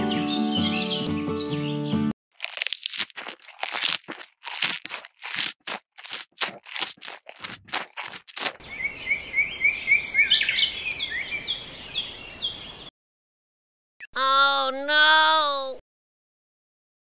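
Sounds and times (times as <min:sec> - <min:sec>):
crisp crunching strokes: 0:02.3 - 0:08.6.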